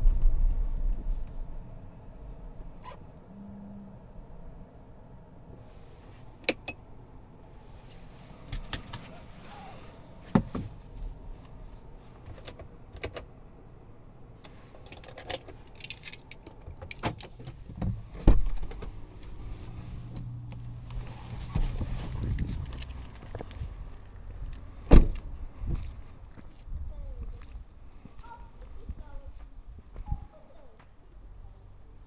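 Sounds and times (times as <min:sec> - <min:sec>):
heavy thump: 0:00.0 - 0:01.4, 0:10.3 - 0:10.8, 0:24.9 - 0:25.8
steady low hum: 0:00.0 - 0:16.0
clicks and knocks in a car: 0:10.3 - 0:10.8, 0:14.8 - 0:19.4.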